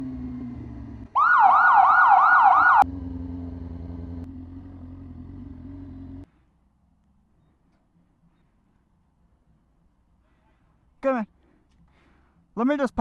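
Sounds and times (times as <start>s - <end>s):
low engine rumble with hum: 0.0s - 1.4s, 2.6s - 10.8s
police siren yelping: 1.2s - 2.9s.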